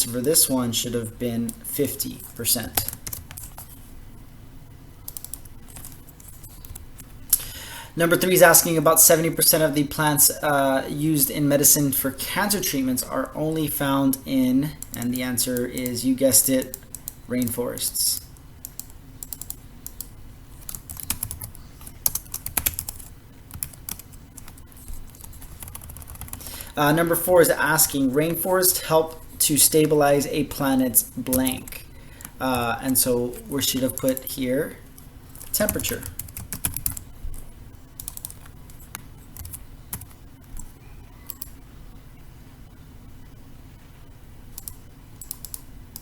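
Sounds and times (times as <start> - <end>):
typing on a computer keyboard: 2.8 - 3.7, 5.1 - 6.8, 18.6 - 26.4, 35.4 - 37.0, 38.0 - 41.6, 44.5 - 46.0.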